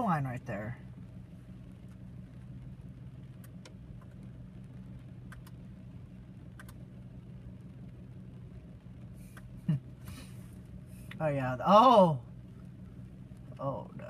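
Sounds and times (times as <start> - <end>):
steady low hum: 0.0 - 14.0
faint clicks: 6.5 - 6.8.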